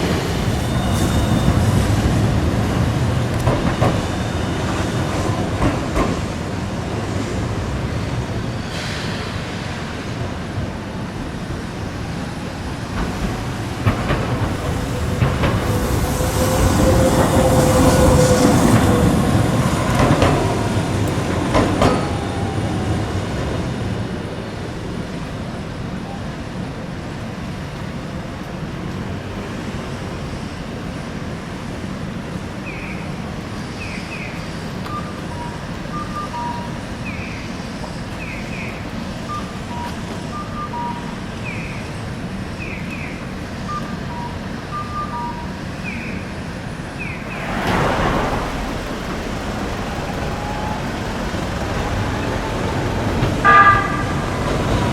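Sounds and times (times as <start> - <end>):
streetcar wheels squealing: 0.0 - 6.7, 12.0 - 24.0, 44.3 - 54.9
street hum: 0.0 - 44.7, 45.4 - 54.9
pedestrian crossing signal beeps: 34.8 - 37.0, 39.2 - 41.8, 43.6 - 46.2, 49.9 - 54.5.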